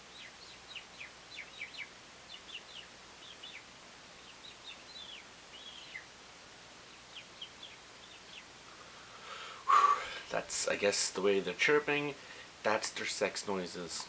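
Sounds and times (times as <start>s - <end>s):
robins chirping: 0.0s - 14.0s.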